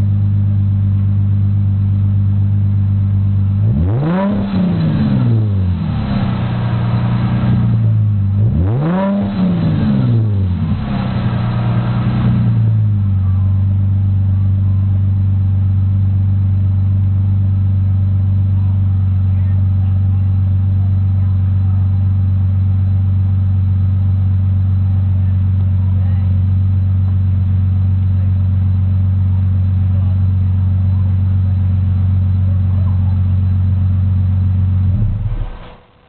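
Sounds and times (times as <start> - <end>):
car engine idling and revving: 0.0 - 36.0.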